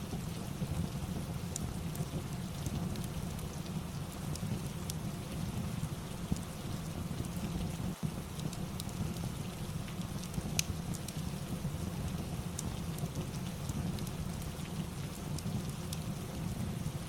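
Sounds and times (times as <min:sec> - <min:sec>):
steady rain: 0:00.0 - 0:17.0
wood fire crackling: 0:00.0 - 0:17.0.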